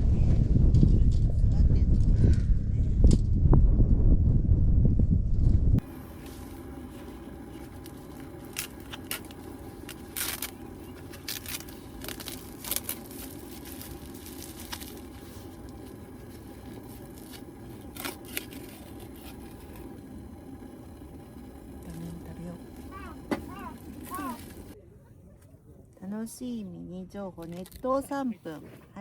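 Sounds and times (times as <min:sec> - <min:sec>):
low background hum: 0:00.0 - 0:29.0
packaging crinkling and ripping: 0:07.5 - 0:20.0, 0:27.4 - 0:27.9.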